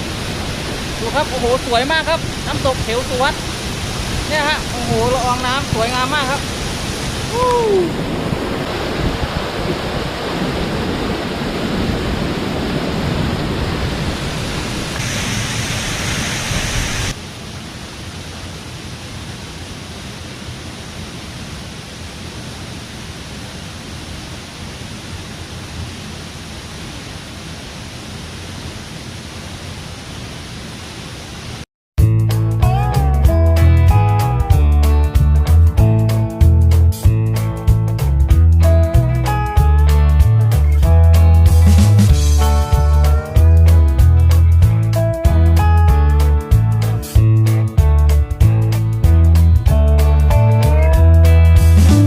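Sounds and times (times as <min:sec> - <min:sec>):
waterfall rushing: 0:00.0 - 0:31.6.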